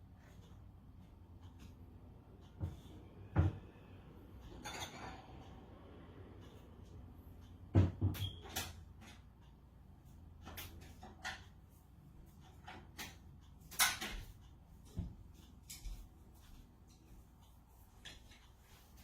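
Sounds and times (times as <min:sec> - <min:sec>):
dishes and utensils knocking: 0:04.5 - 0:05.4
dish scraping: 0:04.6 - 0:05.4.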